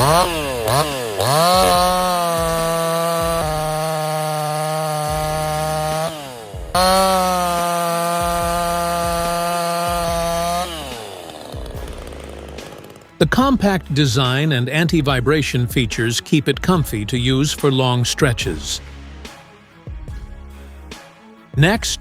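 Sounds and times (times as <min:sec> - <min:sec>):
chainsaw revving: 0:00.0 - 0:15.6.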